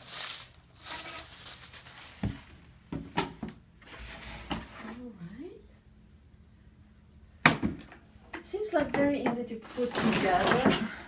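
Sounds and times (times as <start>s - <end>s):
packaging rustling: 0.0s - 2.7s.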